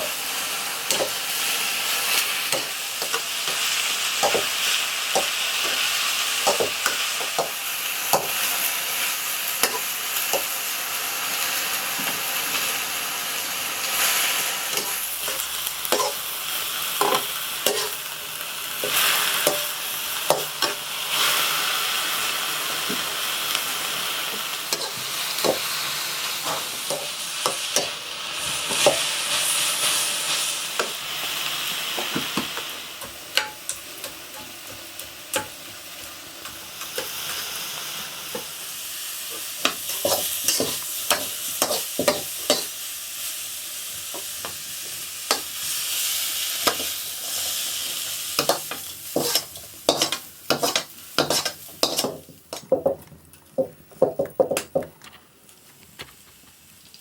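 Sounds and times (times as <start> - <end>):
food sizzling in oil: 0.0 - 54.8
metal spoon scraping pan: 17.0 - 18.0, 48.4 - 52.7.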